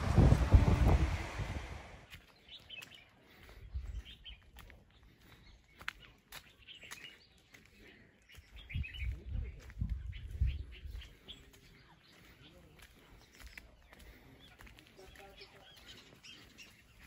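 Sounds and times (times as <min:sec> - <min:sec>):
loud low rumbling thumps: 0:00.0 - 0:02.0
small birds chirping: 0:02.0 - 0:17.0.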